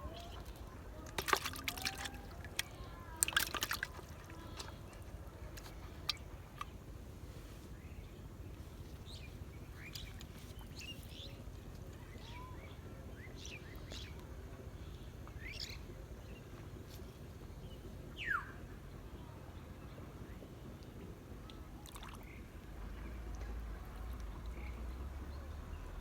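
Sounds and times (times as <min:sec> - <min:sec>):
small birds chirping: 0:00.0 - 0:16.6
low background rumble: 0:00.0 - 0:26.0.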